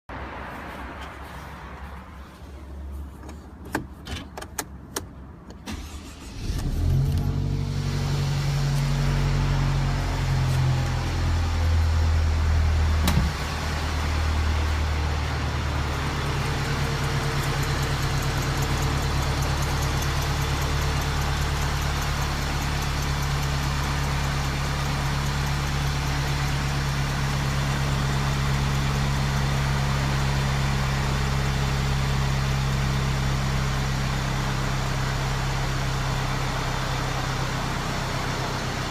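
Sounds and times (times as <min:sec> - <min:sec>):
car engine idling: 0:04.7 - 0:38.9.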